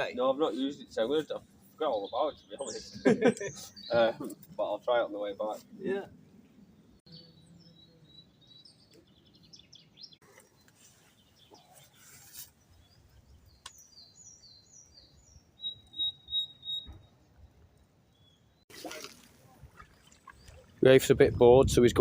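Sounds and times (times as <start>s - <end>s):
songbirds chirping and singing: 0.0s - 18.6s.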